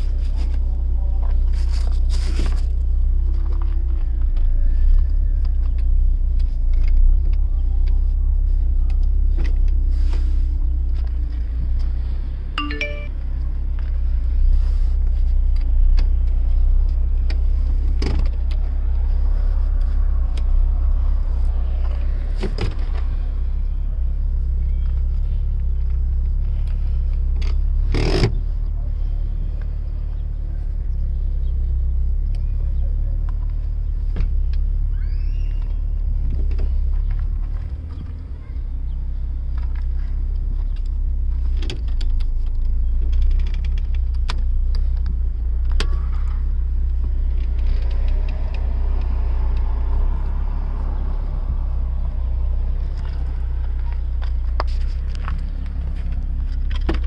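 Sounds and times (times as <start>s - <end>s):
van engine idling: 0.0s - 57.0s
clicks and knocks of seats: 39.5s - 46.0s, 52.9s - 57.0s.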